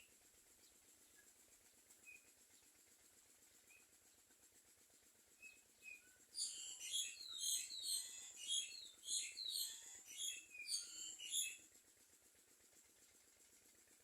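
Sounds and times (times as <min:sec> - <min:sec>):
birds chirping: 0:06.4 - 0:11.6.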